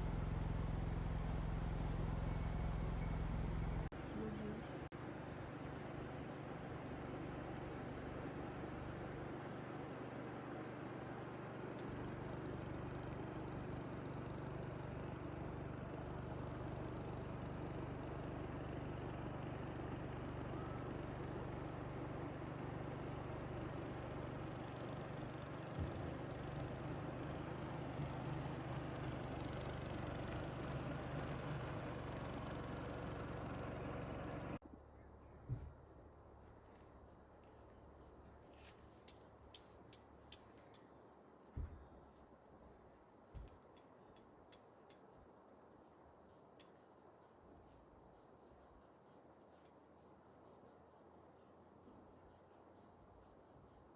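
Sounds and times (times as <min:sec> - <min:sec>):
engine hum: 0:00.0 - 0:40.8
crickets trilling: 0:34.6 - 0:53.9
faint ticks: 0:39.0 - 0:40.9, 0:43.4 - 0:45.1, 0:46.5 - 0:46.8.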